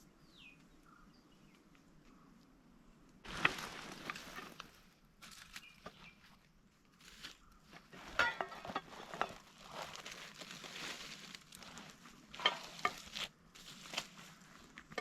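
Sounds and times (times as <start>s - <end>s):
crinkling and rustling: 3.2s - 6.0s, 7.0s - 15.0s.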